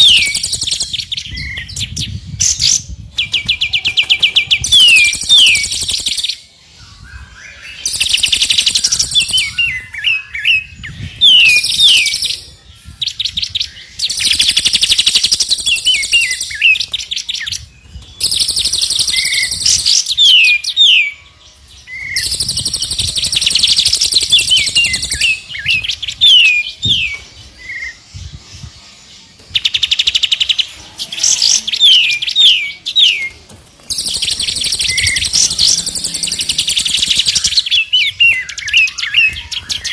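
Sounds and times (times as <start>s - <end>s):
rapid high bird trills: 33.9s - 39.0s.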